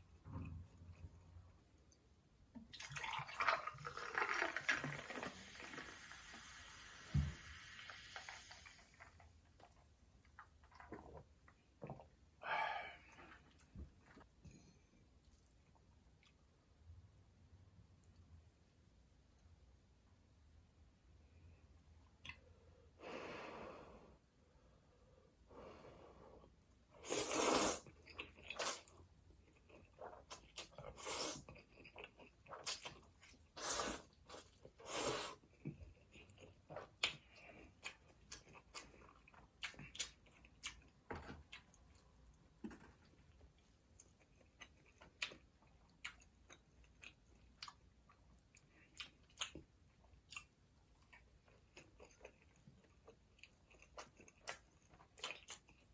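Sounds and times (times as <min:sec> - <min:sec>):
soda fizzing hiss: 0:04.0 - 0:09.0
person breathing hard: 0:12.4 - 0:13.2
person sniffing: 0:27.0 - 0:27.8, 0:34.8 - 0:35.4.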